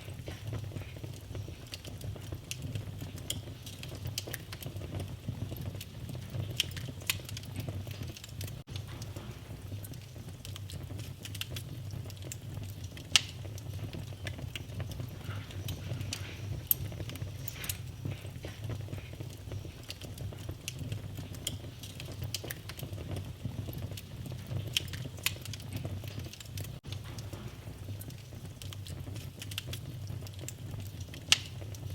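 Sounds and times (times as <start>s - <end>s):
low rumble of flames: 0.0s - 31.9s
wood fire crackling and popping: 0.0s - 31.9s.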